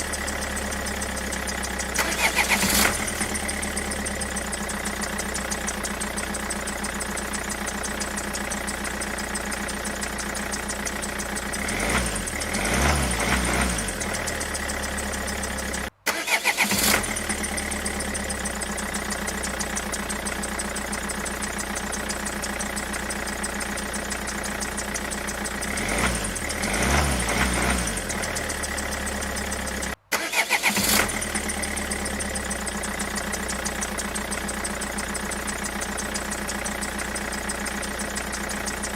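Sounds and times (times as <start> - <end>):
engine running and revving: 0.0 - 9.6, 10.4 - 38.9
engine restart burst: 0.9 - 7.3, 11.4 - 20.3, 25.5 - 37.8.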